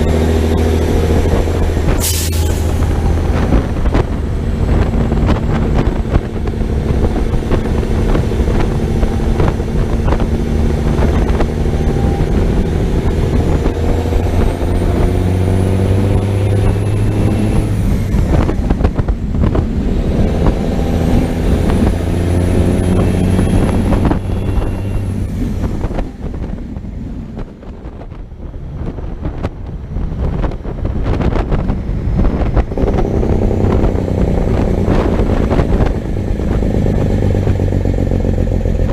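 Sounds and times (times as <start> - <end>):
diesel truck engine pulling hard: 0.0 - 38.9
turbo whistle: 23.0 - 25.2.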